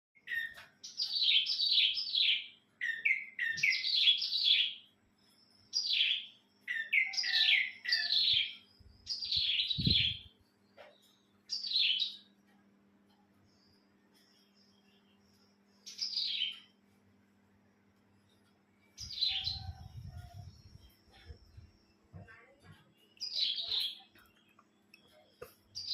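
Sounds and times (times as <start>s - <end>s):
bird singing chirpy notes: 5.7s - 10.4s, 18.8s - 25.9s.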